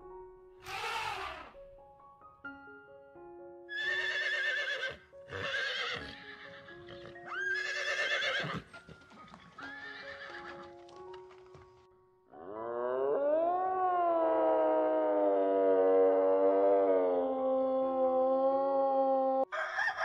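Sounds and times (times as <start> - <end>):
soft background music: 0.0 - 20.0
horse neighing: 0.6 - 1.6, 3.7 - 8.7, 9.6 - 10.6
long rising animal call: 0.6 - 1.6, 12.3 - 19.5.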